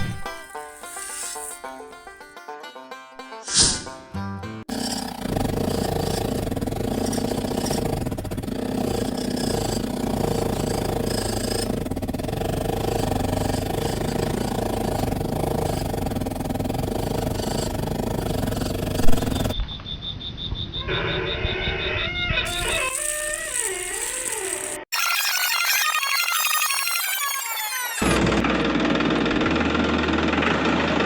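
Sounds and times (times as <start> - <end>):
engine running steadily: 4.7 - 19.6.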